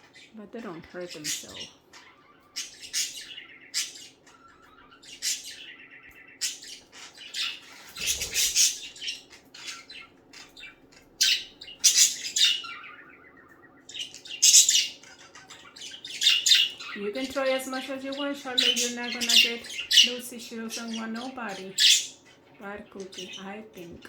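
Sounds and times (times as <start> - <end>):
budgerigars squawking: 0.0 - 24.0.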